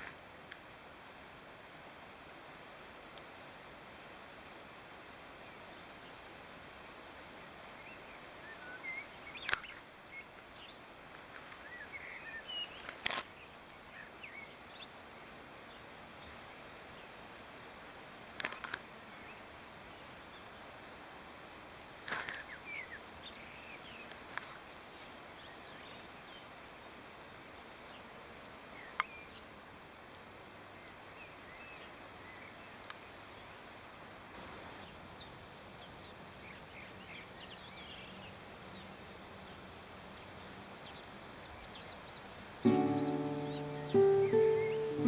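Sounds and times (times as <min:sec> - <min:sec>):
soft steady hiss: 0:00.0 - 0:45.0
bird chirps and calls: 0:41.5 - 0:45.0.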